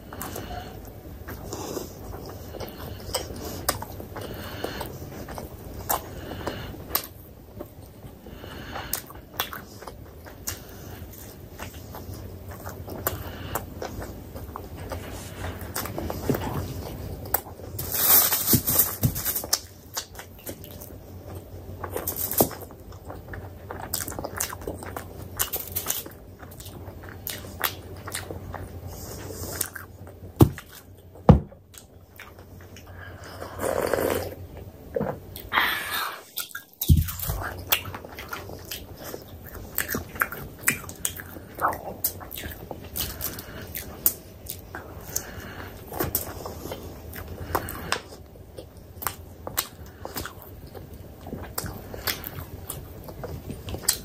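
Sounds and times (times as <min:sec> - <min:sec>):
person chewing and biting: 0:00.0 - 0:34.4, 0:36.2 - 0:54.0.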